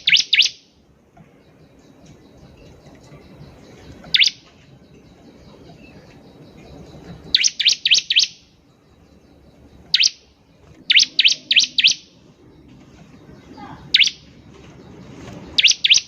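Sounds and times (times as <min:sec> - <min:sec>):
bird singing sharp descending notes: 0:01.4 - 0:16.0.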